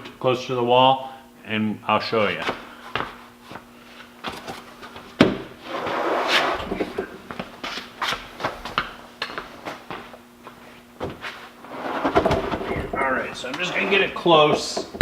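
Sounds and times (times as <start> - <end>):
workbench scraping across floor: 5.4 - 7.9, 11.0 - 15.0
knocks and clunks: 11.8 - 13.7.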